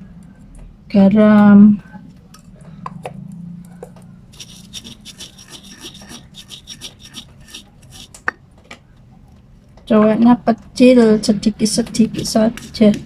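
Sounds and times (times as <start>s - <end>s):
pestle grinding in mortar: 4.3s - 8.3s, 12.0s - 13.0s.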